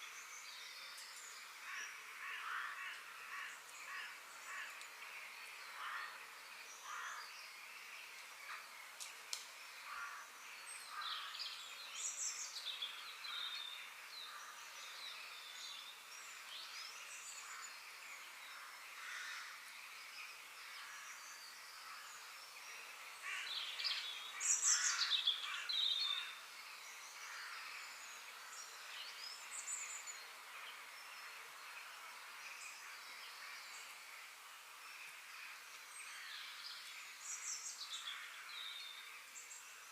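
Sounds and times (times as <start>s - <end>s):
outdoor background noise: 0.0s - 39.9s
birds chirping and calling: 20.6s - 31.3s.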